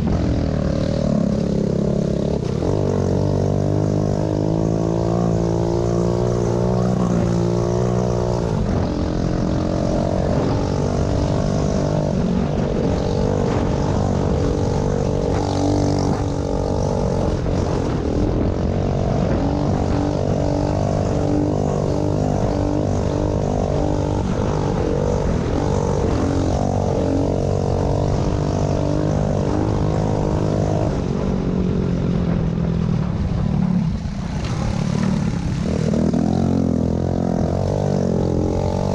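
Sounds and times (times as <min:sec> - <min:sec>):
small motorbike engine revving: 0:00.0 - 0:31.2.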